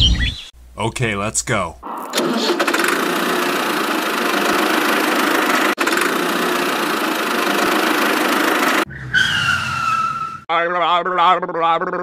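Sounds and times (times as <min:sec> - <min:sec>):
small tractor engine buzzing: 0:02.2 - 0:08.9.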